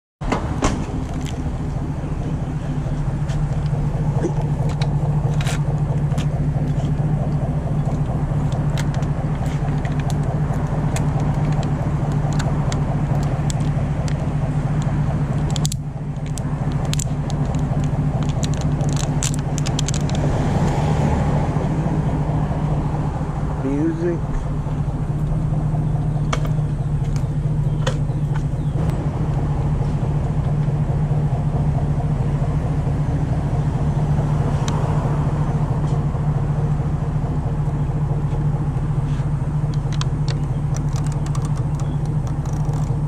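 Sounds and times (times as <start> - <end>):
vehicle engine idling: 0.2 - 43.0
plastic water bottle clicks and rattles: 15.3 - 20.3.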